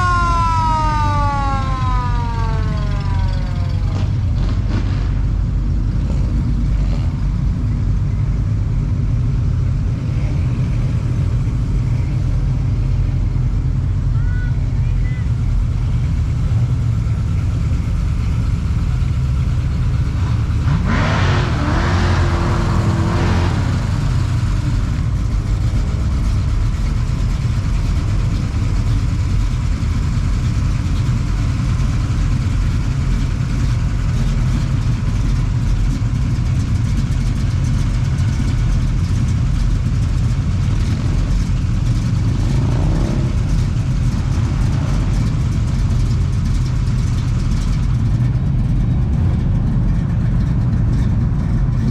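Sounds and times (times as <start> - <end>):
car revving up: 0.0 - 7.4, 15.7 - 35.6, 40.7 - 51.0
car engines rumbling: 0.0 - 51.9.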